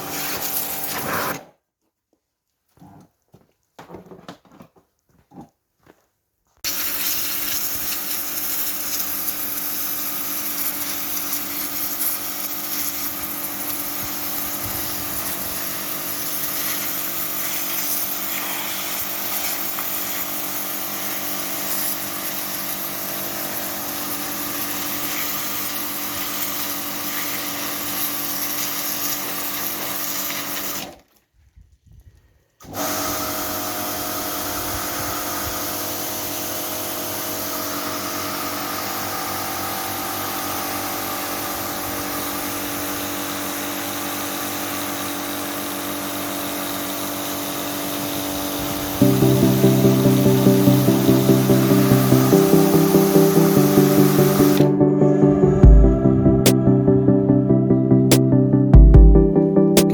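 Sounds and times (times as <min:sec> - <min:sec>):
pressure washer running: 0:00.0 - 0:01.3, 0:06.7 - 0:30.7, 0:51.4 - 0:54.6.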